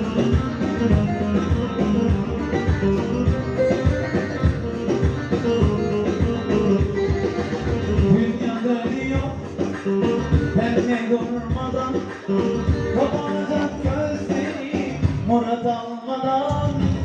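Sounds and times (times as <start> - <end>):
drum beating steady strokes: 0.0 - 10.9
sustained melody line: 0.0 - 15.3.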